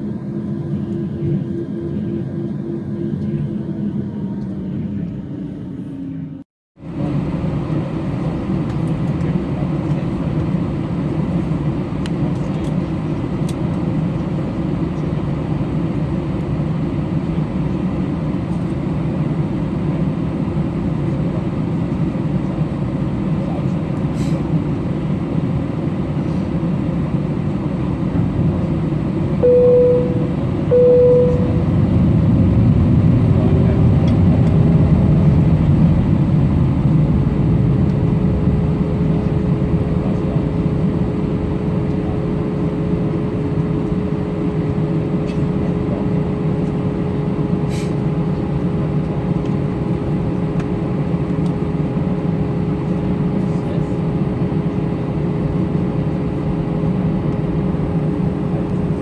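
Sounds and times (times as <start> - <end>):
jet airliner rumble: 0.0 - 59.0
short electronic beeps: 29.4 - 31.7
rising whine: 29.4 - 35.2.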